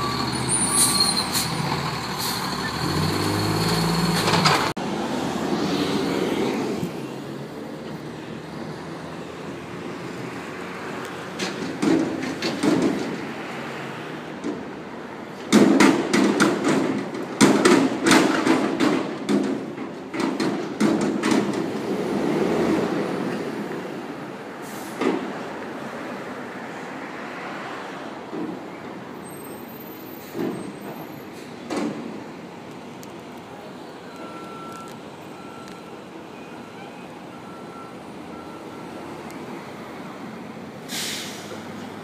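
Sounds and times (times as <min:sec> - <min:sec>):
garbage truck running: 0:00.0 - 0:04.8.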